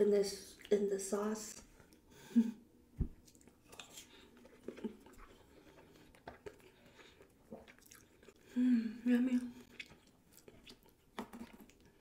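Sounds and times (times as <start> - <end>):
person chewing with wet smacks: 3.0 - 8.6, 9.3 - 12.0.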